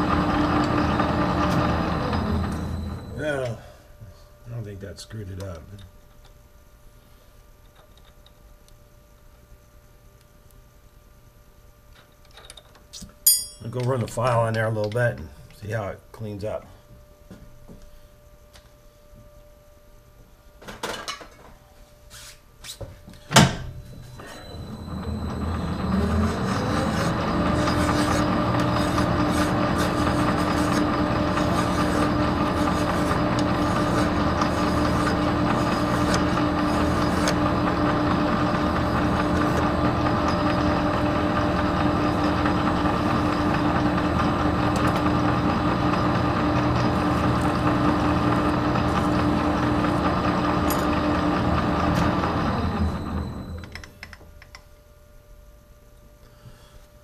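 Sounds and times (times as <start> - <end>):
lathe motor running: 0.0 - 3.3, 24.2 - 53.7.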